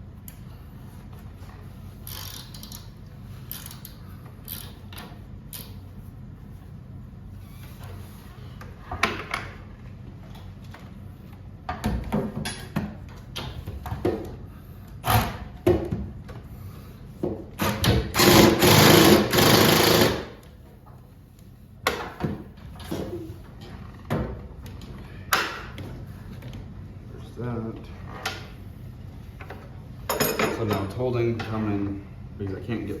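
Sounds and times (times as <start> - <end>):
impact driver hammering: 17.6 - 20.4.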